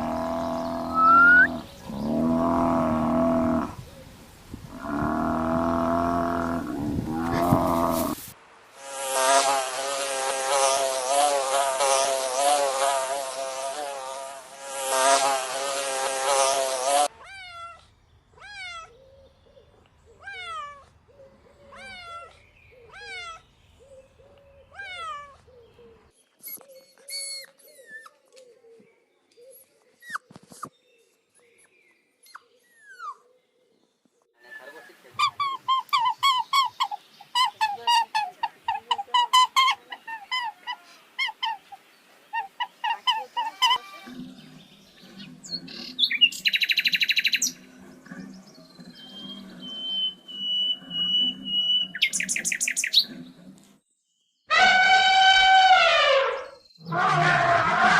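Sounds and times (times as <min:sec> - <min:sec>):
dense wavering buzzing: 0:00.0 - 0:03.8
loud pitched animal call: 0:00.0 - 0:03.9, 0:04.7 - 0:08.2, 0:35.2 - 0:44.3, 0:49.1 - 0:53.2, 0:54.5 - 0:57.9
short falling animal call: 0:00.7 - 0:03.8, 0:04.7 - 0:08.3, 0:54.5 - 0:57.9.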